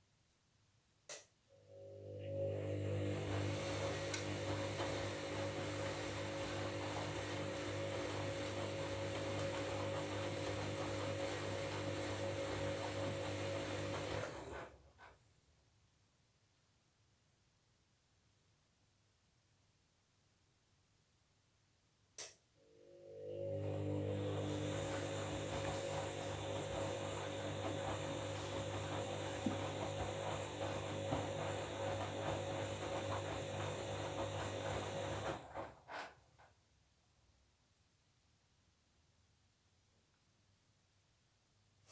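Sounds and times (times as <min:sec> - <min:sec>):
washing machine running: 0:01.7 - 0:14.9, 0:22.7 - 0:36.1
laundry sloshing in drum: 0:24.1 - 0:35.4.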